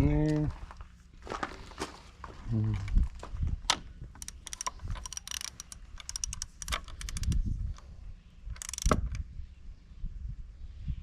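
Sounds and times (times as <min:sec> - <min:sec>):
ratchet wrench clicking: 0:04.2 - 0:07.4, 0:08.6 - 0:09.2.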